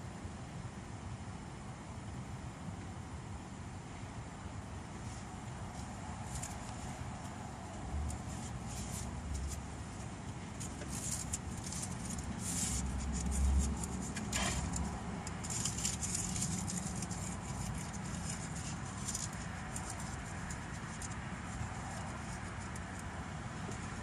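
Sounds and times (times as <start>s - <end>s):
car idling hum: 0.7s - 24.0s
paper wrapper crinkling: 8.1s - 23.0s.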